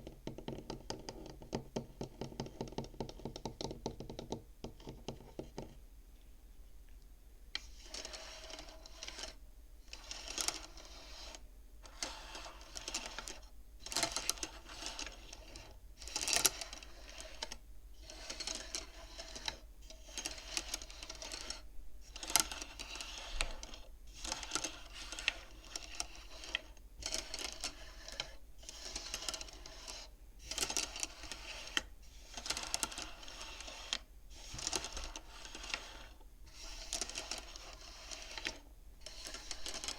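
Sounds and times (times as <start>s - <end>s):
abacus beads clacking: 24.3s - 39.9s.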